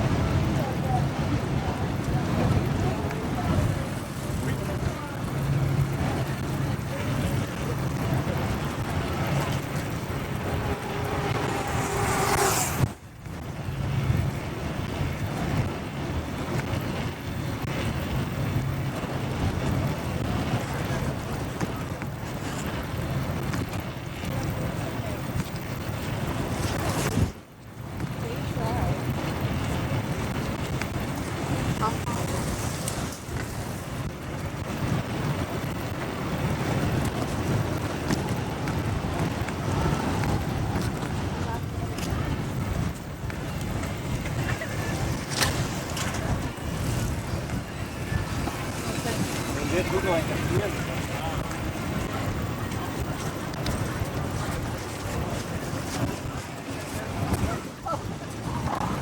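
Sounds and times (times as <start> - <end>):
traffic and road noise: 0.0 - 59.0
wind noise on microphone: 0.0 - 59.0
motorcycle engine running: 3.4 - 15.3
loud rush: 3.6 - 14.0.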